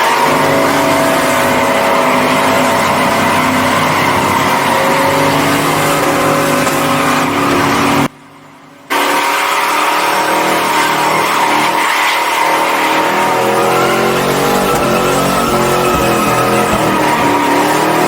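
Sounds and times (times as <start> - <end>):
tires squealing on pavement: 12.4 - 18.0.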